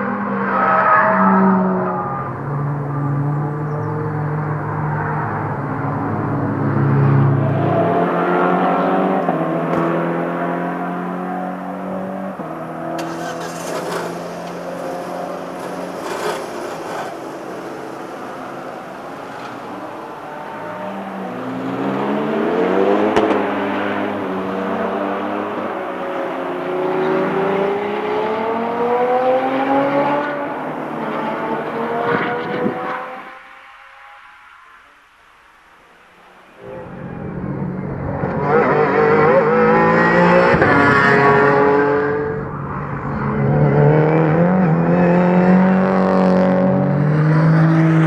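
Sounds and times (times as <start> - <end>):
car engine accelerating: 1.6 - 34.2.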